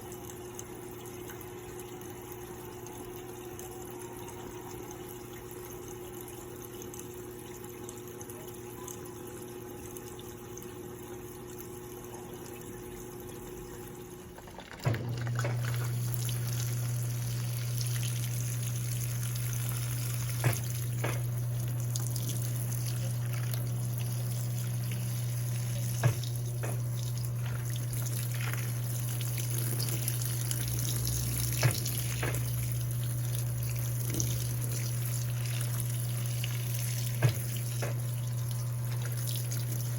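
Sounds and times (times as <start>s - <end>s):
washing machine humming: 0.0s - 39.9s
water rushing into tub: 11.9s - 39.9s.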